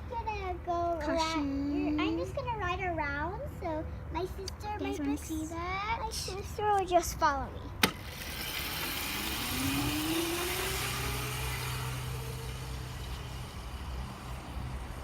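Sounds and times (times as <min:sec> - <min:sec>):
electric motor whining: 0:08.0 - 0:15.0.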